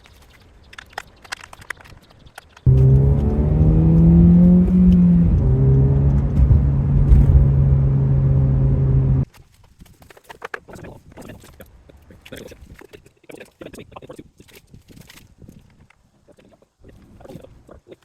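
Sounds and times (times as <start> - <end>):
car engine running: 2.7 - 9.2.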